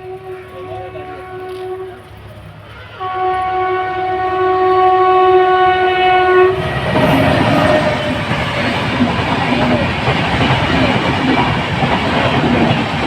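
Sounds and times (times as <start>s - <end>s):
locomotive horn blast: 0.0s - 9.1s
goods train passing: 0.0s - 13.0s.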